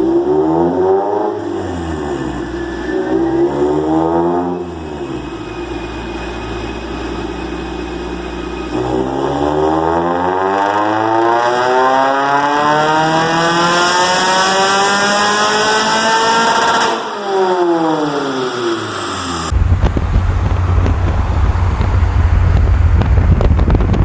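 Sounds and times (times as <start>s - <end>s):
car engine revving: 0.0s - 24.0s
wind noise on microphone: 19.5s - 24.0s.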